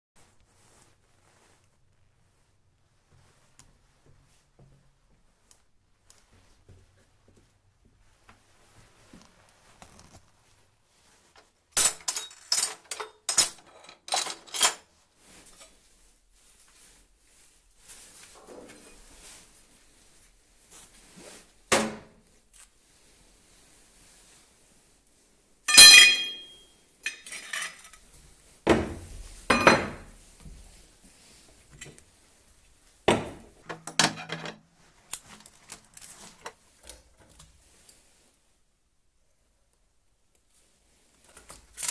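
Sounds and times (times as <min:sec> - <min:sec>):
metal objects clattering: 0:11.8 - 0:14.8, 0:25.7 - 0:28.0
metal tools knocking on workbench: 0:25.7 - 0:26.5, 0:28.7 - 0:30.1, 0:33.1 - 0:34.5.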